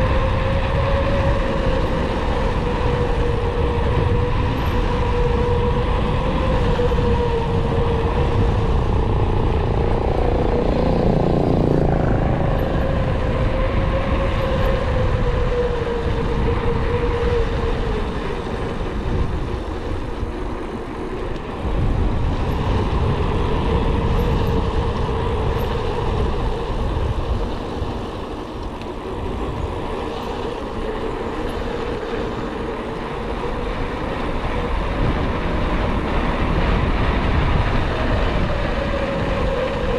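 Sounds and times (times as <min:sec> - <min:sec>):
wavering steady whine: 0:00.0 - 0:39.9
wind rushing over microphone: 0:00.0 - 0:39.9.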